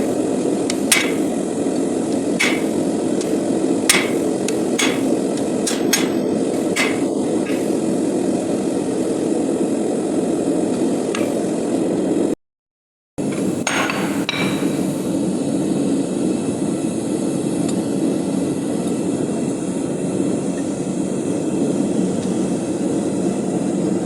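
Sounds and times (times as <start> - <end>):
steady rushing noise: 0.0 - 12.4
hammer striking steel on anvil: 0.7 - 1.4, 2.4 - 2.9, 3.9 - 7.8, 13.3 - 14.9.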